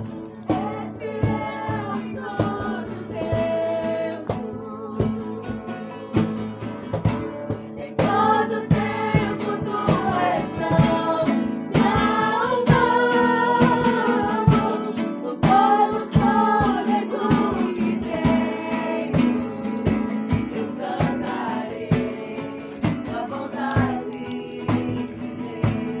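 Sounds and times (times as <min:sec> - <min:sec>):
people singing worship song: 0:00.0 - 0:26.0
strummed guitar: 0:00.0 - 0:26.0.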